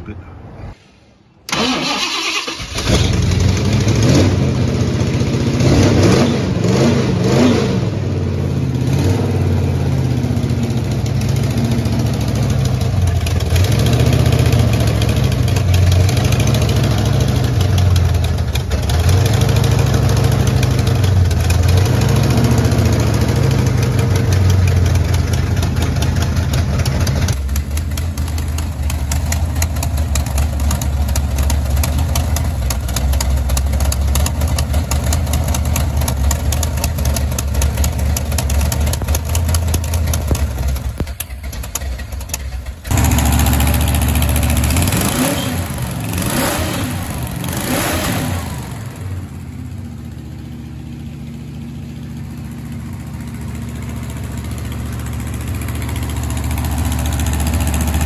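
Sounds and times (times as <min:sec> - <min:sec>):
car engine starting and revving: 0:01.5 - 0:09.6, 0:27.3 - 0:49.3
engine idling with rhythmic rise: 0:09.6 - 0:46.2, 0:48.6 - 0:58.0.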